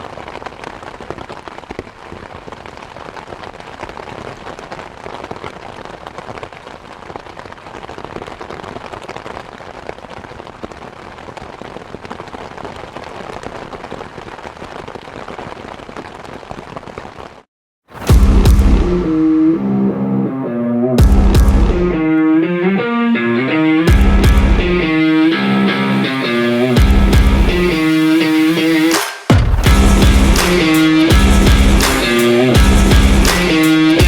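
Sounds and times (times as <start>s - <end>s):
electric guitar music: 18.1s - 34.0s.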